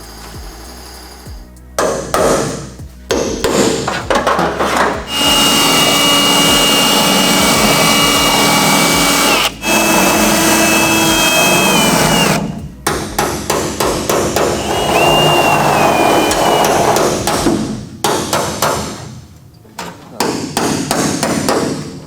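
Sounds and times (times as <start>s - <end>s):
rapid knocking strikes: 1.3s - 15.0s
power tool cutting metal: 5.1s - 12.5s, 14.4s - 17.0s.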